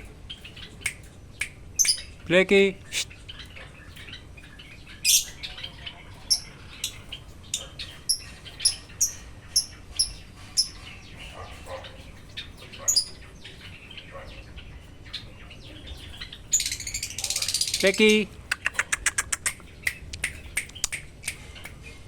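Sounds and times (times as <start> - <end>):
bird chirping sharply: 1.8 - 3.2.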